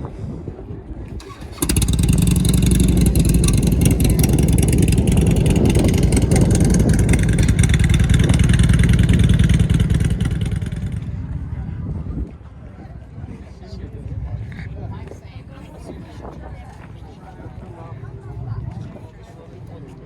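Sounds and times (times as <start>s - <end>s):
vehicle engine running loudly: 1.3s - 11.5s.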